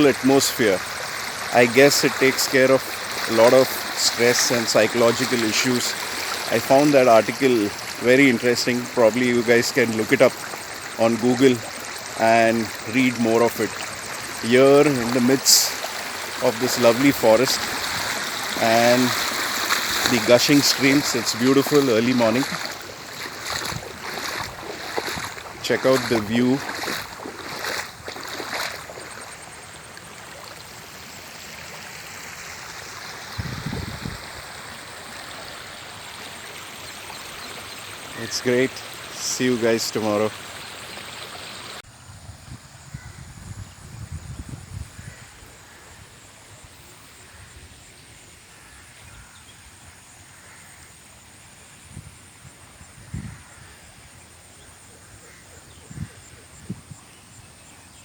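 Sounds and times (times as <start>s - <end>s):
stream gushing over rocks: 0.0s - 41.9s
insects trilling: 0.0s - 58.0s.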